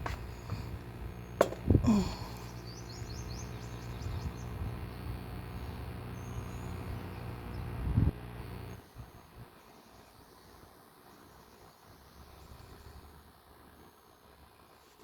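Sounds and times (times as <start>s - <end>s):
low mechanical hum: 0.0s - 15.0s
sharp knock: 1.4s - 1.6s.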